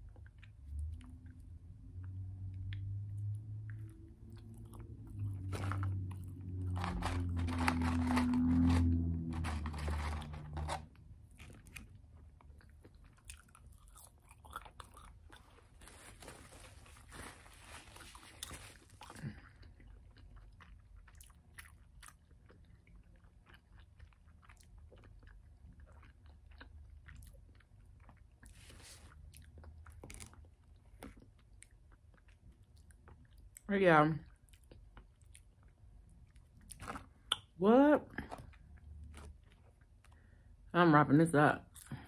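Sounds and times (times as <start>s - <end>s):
person chewing crunchy food: 2.5s - 33.6s, 34.3s - 37.6s, 38.2s - 40.5s
rustling: 6.6s - 11.6s, 15.4s - 19.2s.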